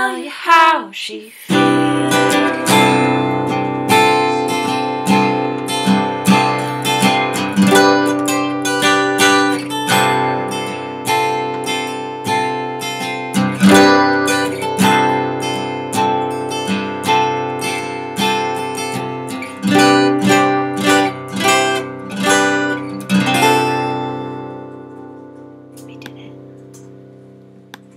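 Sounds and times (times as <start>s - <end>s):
acoustic guitar strumming: 1.5s - 27.9s.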